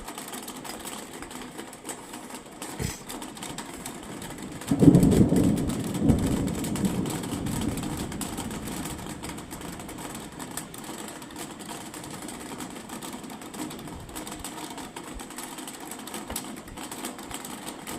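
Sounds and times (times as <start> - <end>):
thunder clap and rumble: 4.0 - 13.1.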